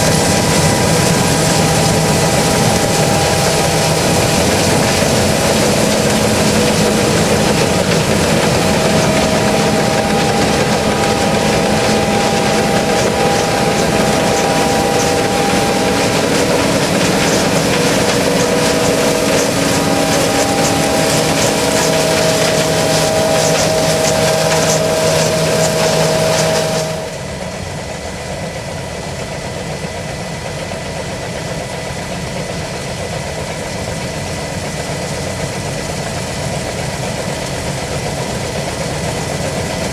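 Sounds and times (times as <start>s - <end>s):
held whining tones: 0.0s - 27.3s
combine harvester running: 0.0s - 29.7s.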